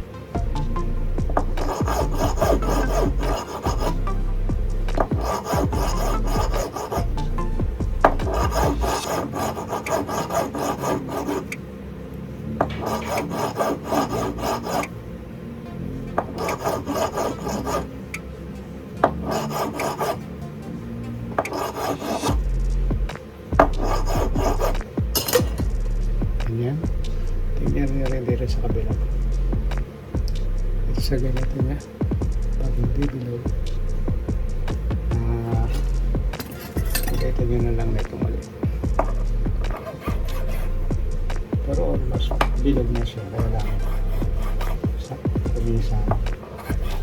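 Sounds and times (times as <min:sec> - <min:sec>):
hand file rasping on metal: 0:01.3 - 0:07.4, 0:08.0 - 0:11.6, 0:12.7 - 0:14.9, 0:16.4 - 0:17.9, 0:19.0 - 0:20.2, 0:21.4 - 0:22.6, 0:23.6 - 0:25.8, 0:34.6 - 0:47.0.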